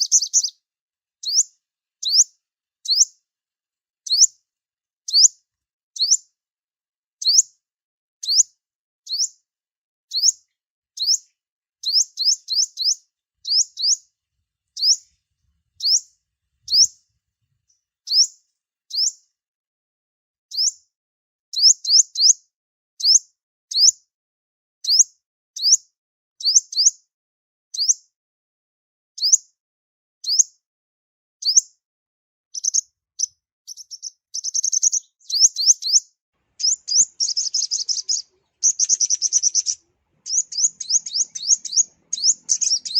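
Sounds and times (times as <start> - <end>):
buzzy bird trill: 0.0 - 0.5, 11.8 - 14.0, 14.8 - 15.1, 15.8 - 16.1, 32.6 - 42.9
sunbird high upward chirps: 0.0 - 0.6, 1.2 - 3.1, 4.1 - 4.3, 5.1 - 5.3, 6.0 - 6.2, 8.2 - 8.5, 9.1 - 9.4, 10.1 - 10.4, 11.0 - 11.2, 11.8 - 14.1, 14.8 - 15.2, 15.8 - 17.0, 18.1 - 19.2, 20.5 - 20.7, 30.2 - 30.4, 32.5 - 42.9.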